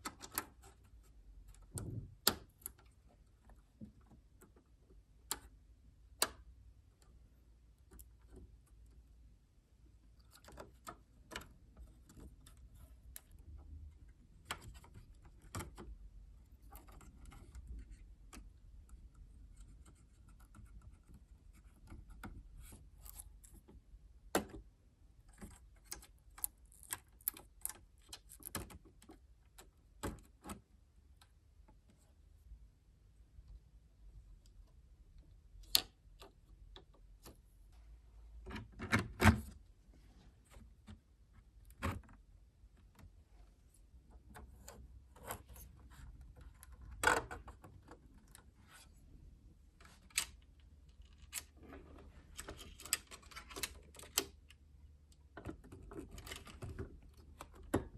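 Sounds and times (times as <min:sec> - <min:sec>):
plastic laptop parts clicking: 0:52.4 - 0:54.6.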